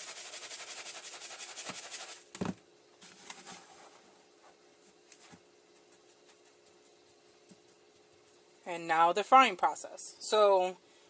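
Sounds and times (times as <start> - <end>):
hands patting breadcrumbs: 4.9 - 8.5.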